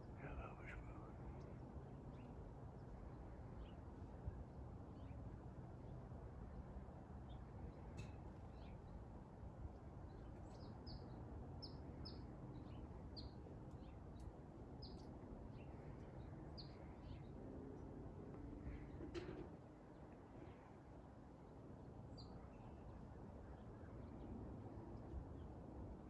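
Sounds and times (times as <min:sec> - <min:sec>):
faint low rumble: 0:00.0 - 0:26.0.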